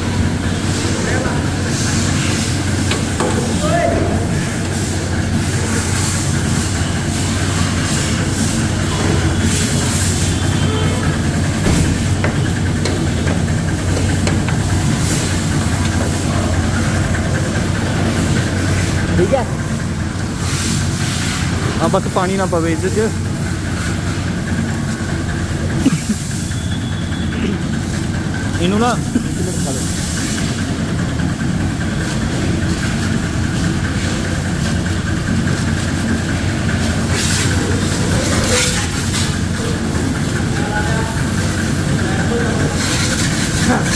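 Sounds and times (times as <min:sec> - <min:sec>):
motor humming: 0:00.0 - 0:20.5
pressure washer motor hum: 0:00.0 - 0:43.9
hiss: 0:23.7 - 0:28.2, 0:28.9 - 0:43.9.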